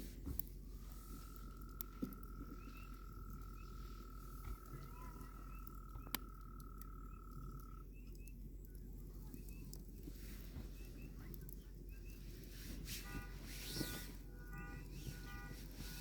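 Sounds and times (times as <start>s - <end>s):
campfire pops: 0.0s - 16.0s
frog trilling: 1.2s - 7.8s.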